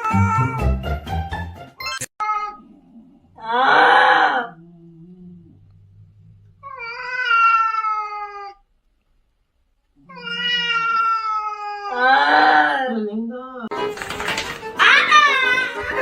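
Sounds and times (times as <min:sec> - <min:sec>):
cat meowing: 0:02.2 - 0:02.7, 0:06.6 - 0:08.6, 0:10.0 - 0:12.8.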